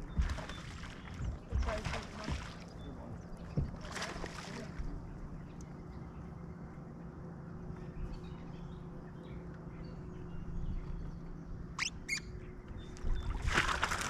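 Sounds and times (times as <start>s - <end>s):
birds chirping faintly: 0.0s - 13.6s
low hum: 0.0s - 14.0s
sharp rising bird chirps: 11.8s - 12.3s.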